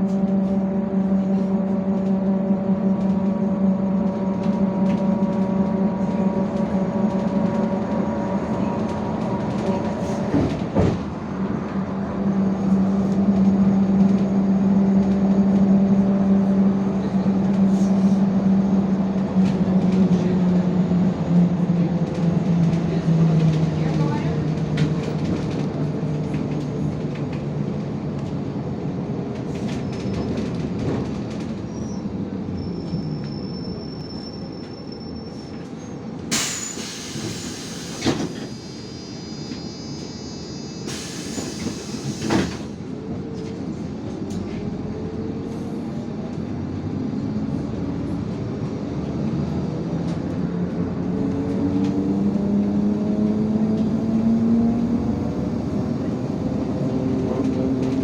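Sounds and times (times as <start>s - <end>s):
bus diesel engine drone: 0.0s - 58.0s
pneumatic door air hisses: 36.3s - 42.8s.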